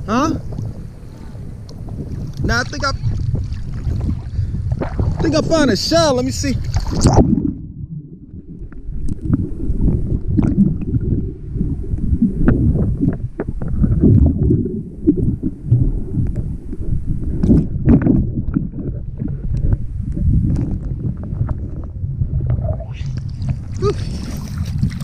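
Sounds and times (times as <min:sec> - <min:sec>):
sea water sloshing: 0:00.4 - 0:25.0
small water splashes: 0:06.4 - 0:07.5, 0:23.0 - 0:25.0.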